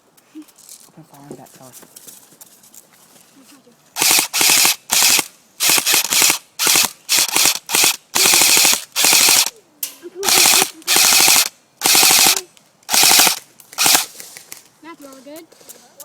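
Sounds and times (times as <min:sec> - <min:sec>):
airsoft gun firing bursts: 0:04.0 - 0:09.5, 0:10.2 - 0:14.1.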